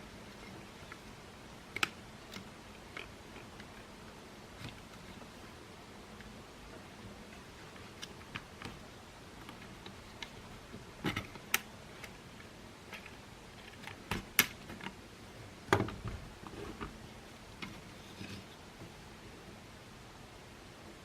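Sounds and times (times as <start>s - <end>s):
plastic parts clicking and knocking: 1.7s - 3.9s, 9.4s - 12.2s, 12.9s - 15.0s.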